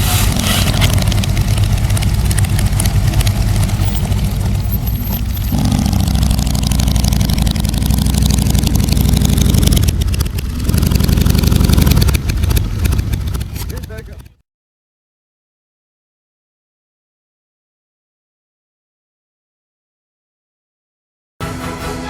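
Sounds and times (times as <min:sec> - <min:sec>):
motorcycle engines running: 0:00.0 - 0:14.4.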